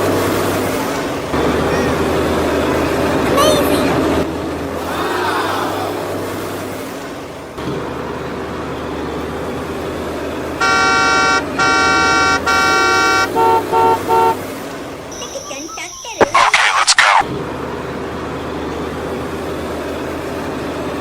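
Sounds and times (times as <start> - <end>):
short horn beeps: 10.6 - 14.4
vehicle horn honking: 10.6 - 14.5.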